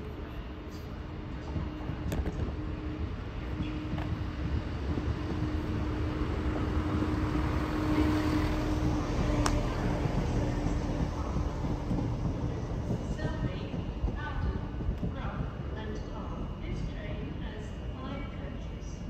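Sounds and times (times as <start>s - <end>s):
train mechanical hum: 0.0s - 19.0s.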